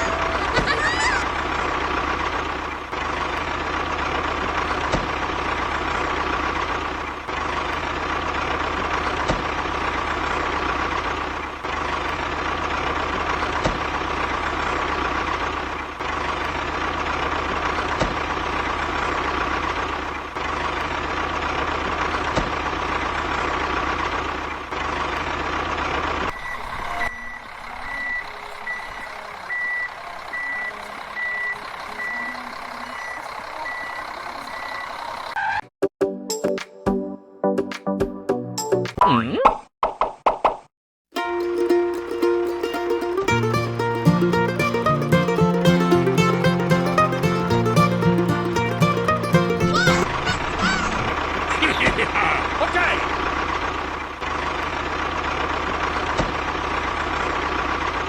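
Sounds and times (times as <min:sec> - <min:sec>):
truck engine running: 0:00.0 - 0:26.3, 0:41.2 - 0:51.6, 0:52.3 - 0:58.0
reversing beeper: 0:26.3 - 0:35.0.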